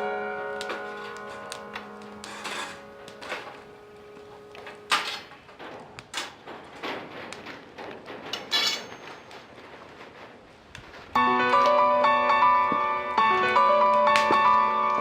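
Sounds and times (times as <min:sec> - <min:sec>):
background music: 0:00.0 - 0:05.0, 0:11.2 - 0:15.0
hard objects clicking and knocking: 0:00.6 - 0:11.2.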